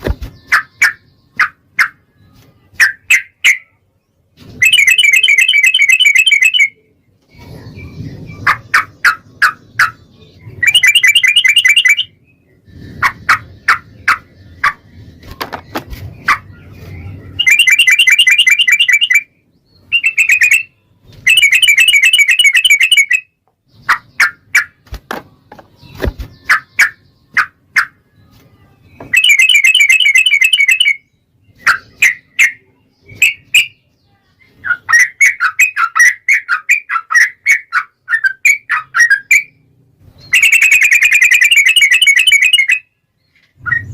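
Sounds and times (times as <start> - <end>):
bird chattering: 16.2 - 19.2.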